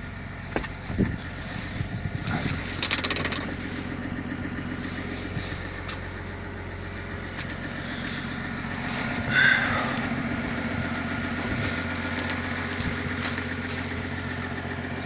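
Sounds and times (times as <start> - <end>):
excavator diesel engine running: 0.0 - 15.0
scraping and clanking: 0.5 - 4.0, 11.3 - 14.6.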